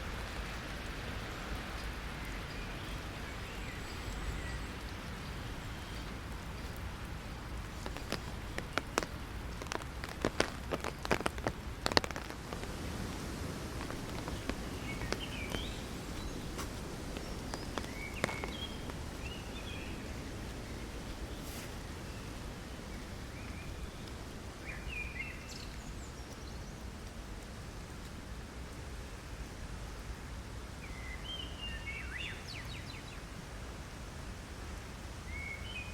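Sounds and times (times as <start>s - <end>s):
rain hissing: 0.0s - 35.9s
drops striking an umbrella: 7.5s - 19.9s.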